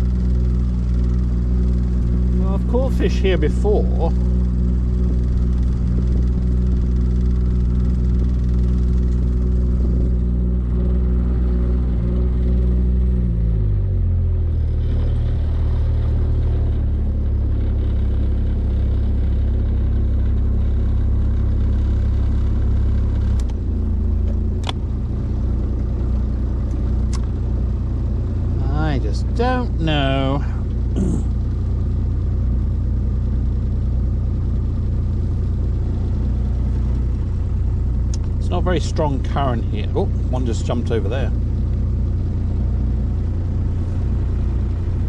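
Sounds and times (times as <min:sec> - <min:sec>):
boat motor running: 0:00.0 - 0:12.9, 0:35.0 - 0:45.0
sharp click: 0:24.6 - 0:24.8, 0:26.7 - 0:27.4.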